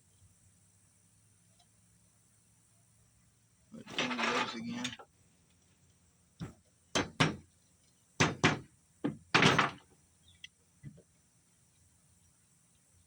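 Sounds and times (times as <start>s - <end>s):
hard knocks on metal socket: 6.4s - 7.4s, 8.2s - 9.8s.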